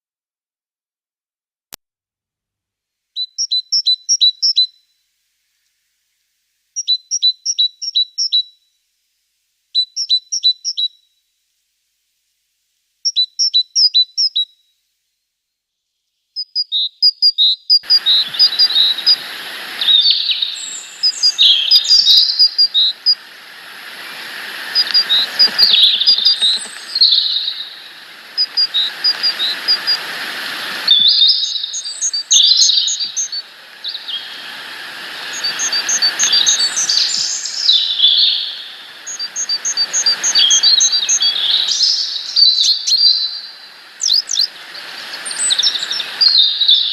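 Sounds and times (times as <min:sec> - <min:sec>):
small birds chirping and trilling: 0:16.4 - 0:46.9
hiss: 0:17.8 - 0:46.9.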